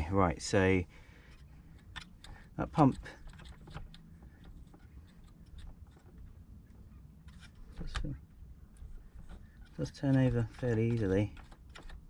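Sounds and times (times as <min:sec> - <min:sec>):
pump motor scraping and clicking: 0:01.3 - 0:06.3, 0:08.8 - 0:12.0.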